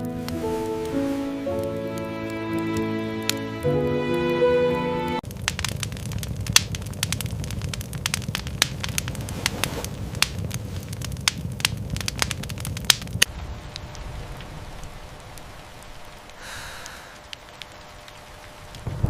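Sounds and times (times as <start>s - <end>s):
rain hissing: 0.0s - 19.0s
wood fire crackling: 0.0s - 19.0s
low rumble: 5.2s - 16.4s.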